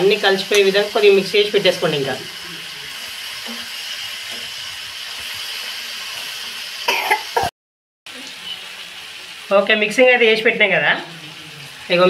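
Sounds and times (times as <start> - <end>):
food sizzling in a pan: 0.0 - 7.5, 8.1 - 12.0
person clearing throat: 6.9 - 7.5.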